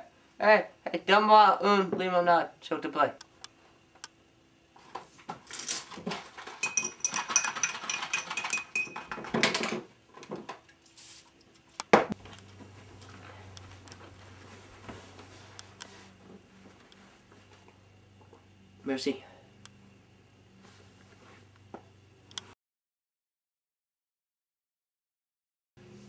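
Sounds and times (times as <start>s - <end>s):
glasses and kitchenware clinking: 6.5s - 9.8s
thin glassy ringing: 6.6s - 9.1s
low steady hum: 10.0s - 22.5s.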